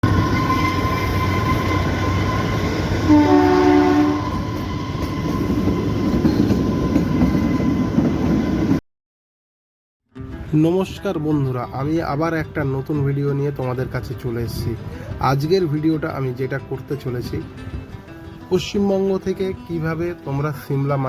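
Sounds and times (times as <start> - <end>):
train horn: 0.0 - 5.8
train rumble and rail noise: 0.0 - 8.8.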